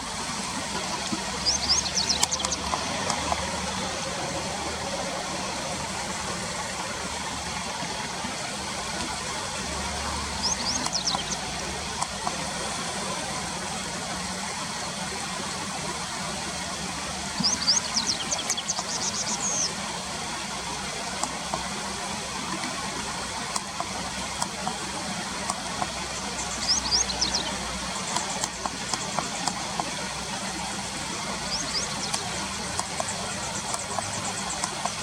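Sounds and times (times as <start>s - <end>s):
bird calling with sliding notes: 0.8s - 5.8s, 10.3s - 12.3s, 25.5s - 35.0s.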